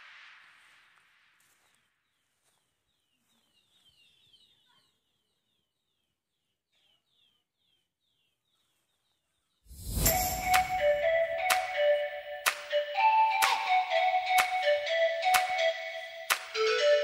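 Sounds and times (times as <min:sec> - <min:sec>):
faint birdsong chirps: 0:01.5 - 0:11.2.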